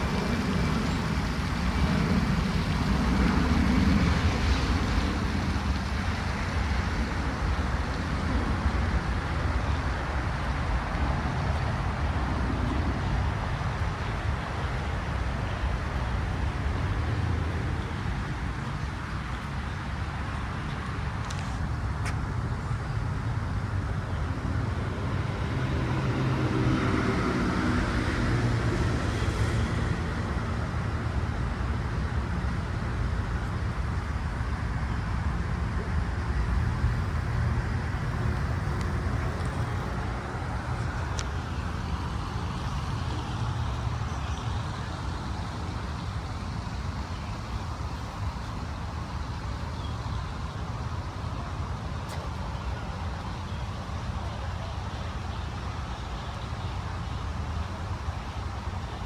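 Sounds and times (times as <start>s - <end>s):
road traffic rumble: 0.0s - 59.0s
heavy vehicle passing: 23.3s - 32.3s.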